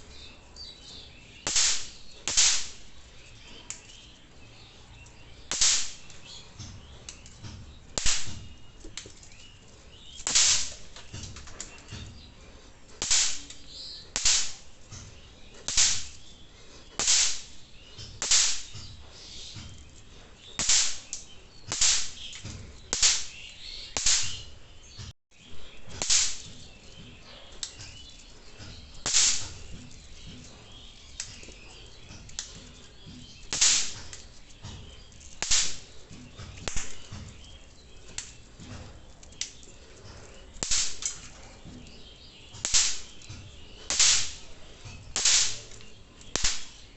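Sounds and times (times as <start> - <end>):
snap pops cracking: 1.4 - 2.9, 3.7 - 3.9, 5.5 - 9.3, 10.2 - 12.0, 13.0 - 15.0, 15.6 - 16.3, 16.9 - 18.9, 20.6 - 24.5, 25.9 - 26.6, 28.6 - 29.9, 31.2 - 32.7, 33.5 - 35.9, 36.5 - 37.3, 38.0 - 39.6, 40.6 - 41.3, 42.6 - 44.4, 45.1 - 46.9.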